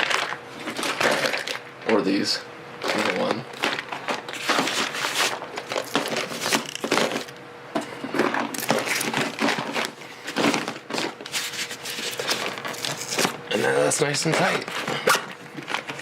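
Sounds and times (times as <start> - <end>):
plastic boxes clattering: 2.9 - 7.3, 8.1 - 11.2.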